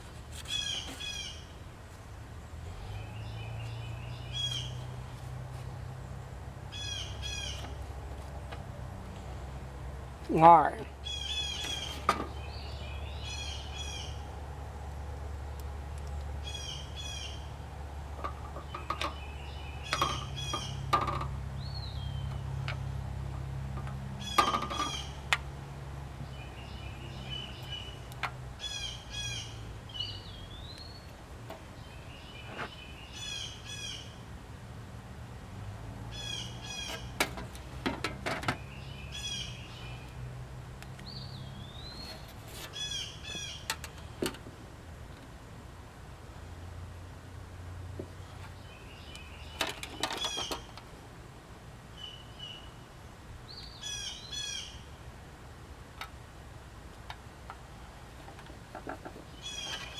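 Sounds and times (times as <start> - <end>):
small bird chirping: 2.7 - 4.9, 6.0 - 7.8, 11.0 - 14.2, 15.9 - 17.6, 21.6 - 23.0, 26.2 - 34.2, 38.6 - 40.2, 40.9 - 44.2, 59.2 - 59.9.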